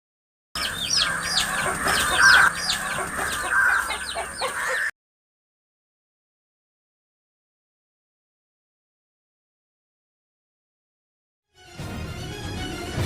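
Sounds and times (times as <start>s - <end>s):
chicks peeping: 0.6s - 4.9s
hen clucking: 0.6s - 4.9s.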